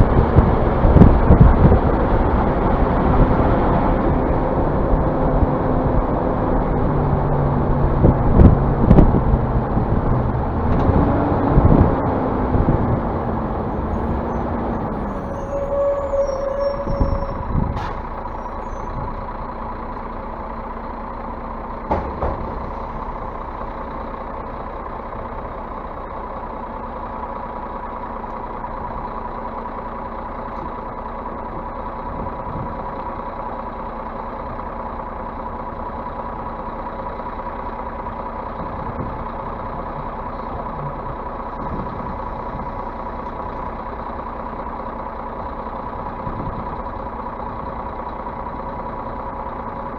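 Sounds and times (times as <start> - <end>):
bus engine idling: 0.0 - 49.9
sharp knocks: 21.9 - 22.7.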